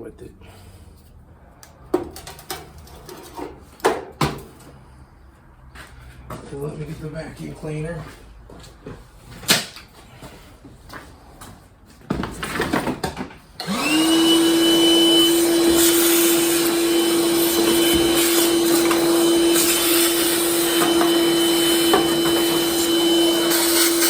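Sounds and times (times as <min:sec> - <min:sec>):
vacuum cleaner motor whine: 0:13.6 - 0:24.0.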